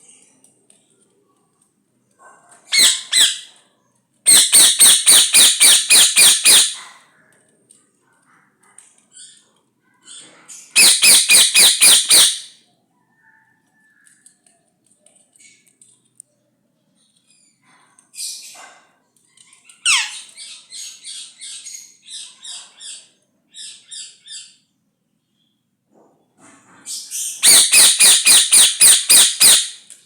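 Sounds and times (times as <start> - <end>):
parrot screeching: 2.7 - 3.5, 4.3 - 6.9, 10.8 - 12.5, 19.8 - 20.3, 27.4 - 29.8.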